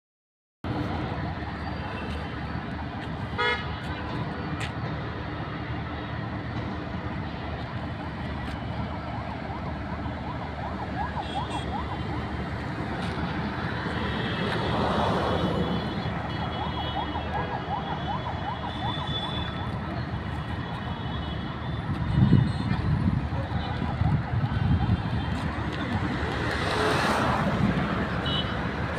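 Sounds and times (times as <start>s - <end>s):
road traffic noise: 0.6s - 28.9s
emergency siren yelping: 7.6s - 20.3s, 23.2s - 27.4s.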